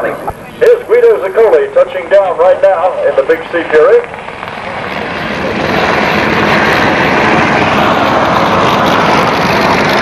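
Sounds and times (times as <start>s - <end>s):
aircraft engine noise: 0.0s - 10.0s.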